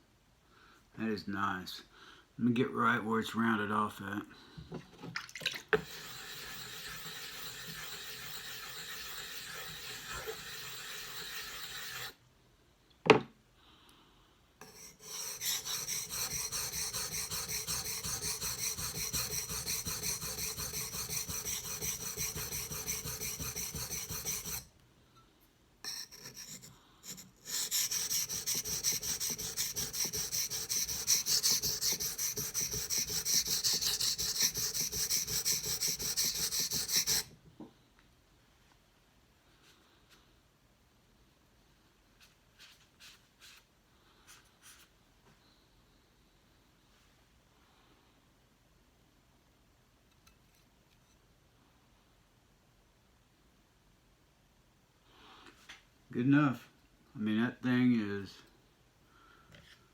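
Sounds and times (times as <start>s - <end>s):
knife scraping on whetstone: 5.8s - 12.2s, 14.6s - 24.7s, 25.8s - 37.3s.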